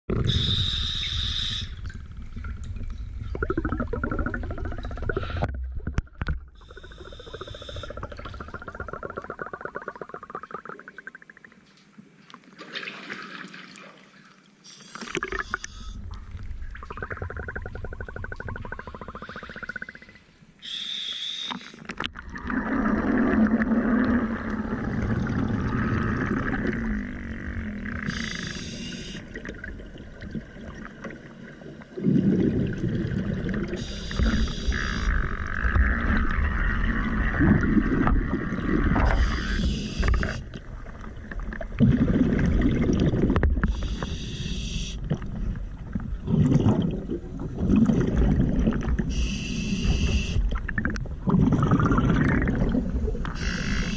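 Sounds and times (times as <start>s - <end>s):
regulator inhalation hiss: 0.4s - 1.8s, 20.6s - 21.7s, 28.1s - 29.3s, 33.8s - 35.1s, 39.2s - 40.4s, 43.7s - 45.0s, 49.1s - 50.4s, 53.4s - 53.9s
bubbling exhalation underwater: 3.3s - 5.5s, 7.7s - 11.5s, 22.1s - 28.2s, 31.9s - 34.4s, 41.6s - 43.7s, 46.2s - 49.1s, 50.6s - 53.3s.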